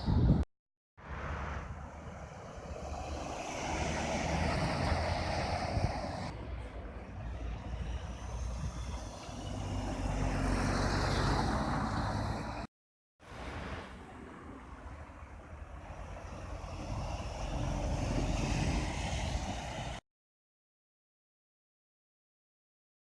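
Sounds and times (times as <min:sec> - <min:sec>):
heavy trucks passing: 0:01.0 - 0:12.7, 0:13.3 - 0:20.0.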